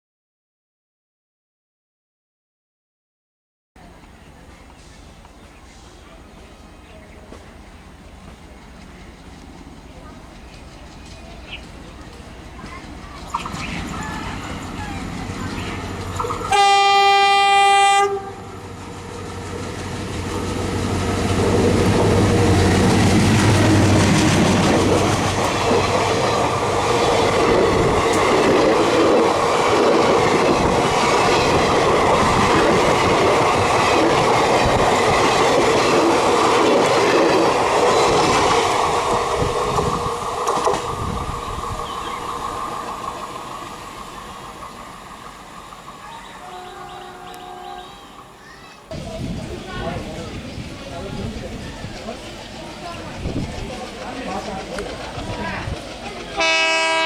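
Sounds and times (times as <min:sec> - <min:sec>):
train wheels clattering: 0:03.8 - 0:17.6, 0:18.6 - 0:57.0
diesel engine rumbling: 0:03.8 - 0:56.7
locomotive horn blast: 0:16.4 - 0:18.6, 0:46.4 - 0:48.4, 0:56.4 - 0:57.0.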